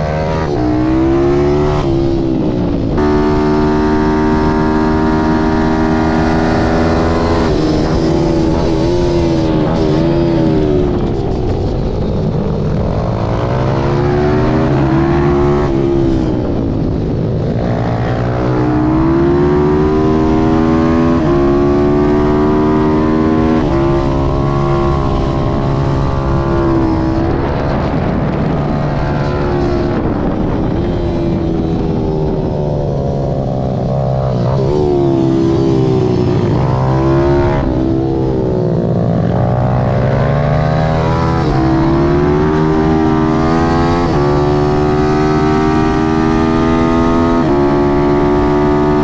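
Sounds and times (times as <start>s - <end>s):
motorbike engine revving: 0.0s - 49.0s.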